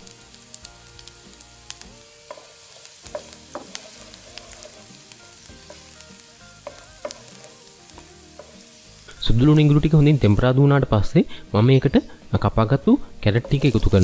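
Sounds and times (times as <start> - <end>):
garlic sizzling in hot oil: 0.0 - 14.0
wooden spoon stirring: 2.3 - 4.8, 13.3 - 14.0.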